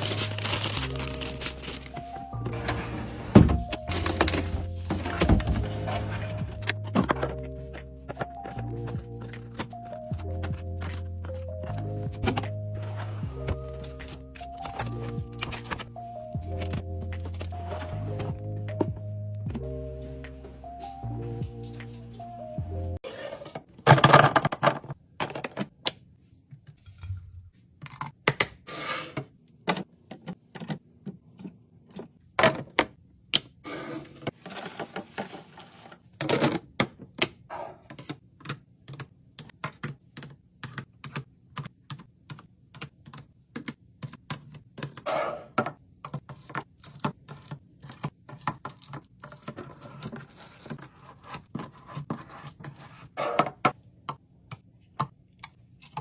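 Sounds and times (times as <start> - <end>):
items being handled and set down: 0.0 - 22.3, 23.0 - 25.8, 33.7 - 40.8.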